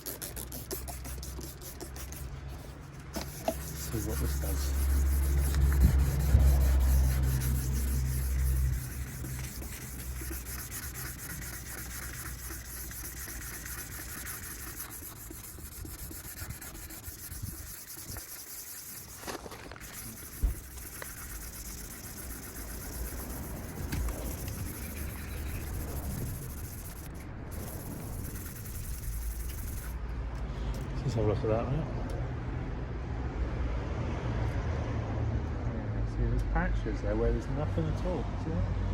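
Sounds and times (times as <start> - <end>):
wet sanding on plastic: 0.0 - 30.0.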